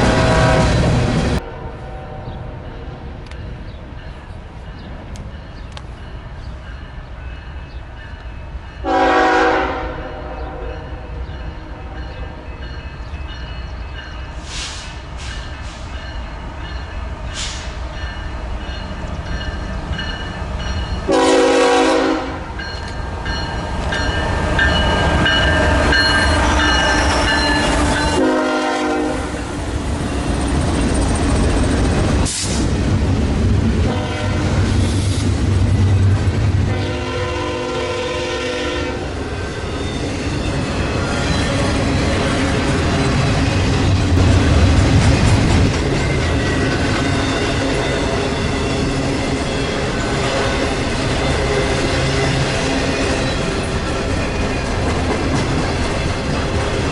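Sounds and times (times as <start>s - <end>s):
locomotive air horn blasts: 0.0s - 2.2s, 8.8s - 10.7s, 21.1s - 22.6s, 28.1s - 29.4s, 33.9s - 34.7s, 36.7s - 39.2s
train rumbling past: 0.0s - 56.9s.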